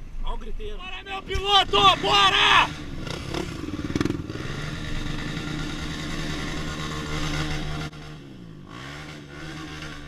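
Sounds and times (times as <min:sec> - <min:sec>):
dirt bike engine under throttle: 0:01.6 - 0:10.0.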